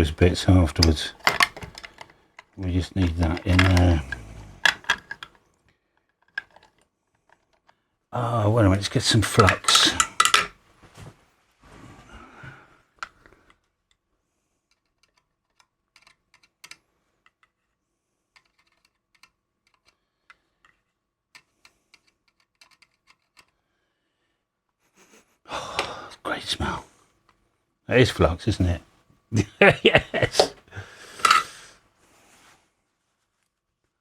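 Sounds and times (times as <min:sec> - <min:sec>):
handling rustle: 0:00.0 - 0:05.3, 0:08.5 - 0:12.0
tools clicking on workbench: 0:00.7 - 0:05.3, 0:06.4 - 0:06.7, 0:09.0 - 0:10.5, 0:29.7 - 0:31.6.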